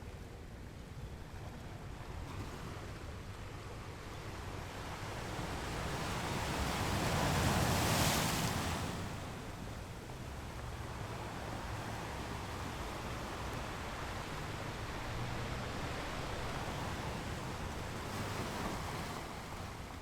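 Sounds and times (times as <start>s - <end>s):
waves breaking on beach: 4.6s - 20.0s.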